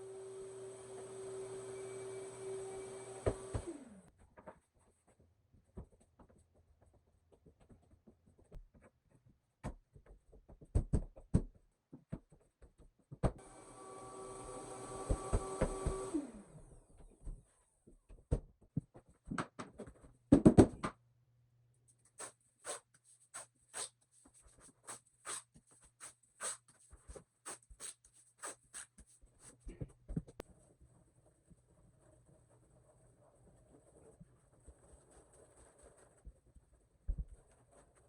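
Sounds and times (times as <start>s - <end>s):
power tool motor humming: 0.0s - 4.1s, 13.4s - 16.6s.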